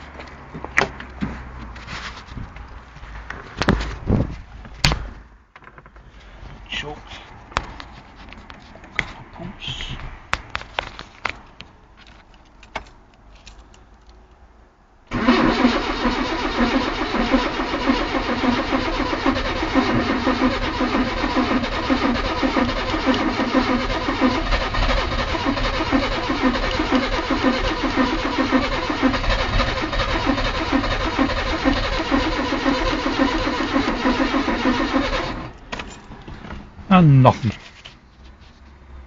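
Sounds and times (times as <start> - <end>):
engine cranking without firing: 15.1 - 35.7.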